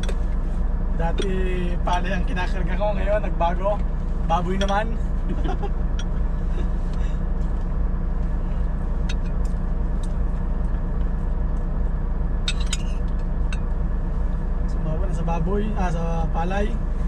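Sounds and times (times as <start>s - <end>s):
diesel engine drone: 0.0s - 17.0s.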